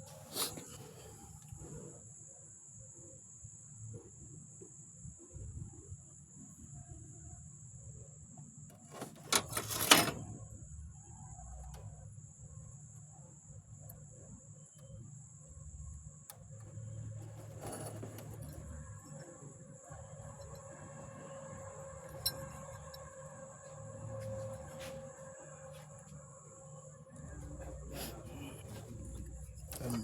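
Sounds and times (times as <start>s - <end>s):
faint high whine: 0.0s - 30.0s
metallic clatter: 8.9s - 10.3s, 17.0s - 19.3s
low steady hum: 8.9s - 30.0s.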